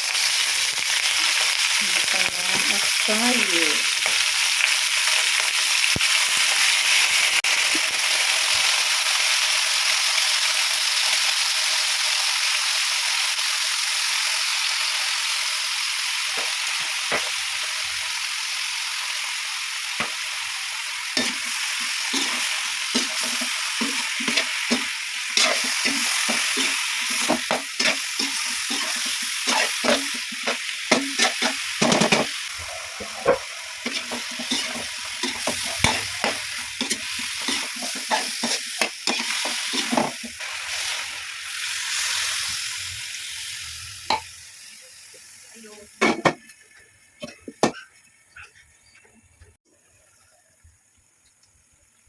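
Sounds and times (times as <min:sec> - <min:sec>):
chicken sizzling in a frying pan: 0:00.0 - 0:48.4
spatula scraping a pan: 0:21.2 - 0:41.1.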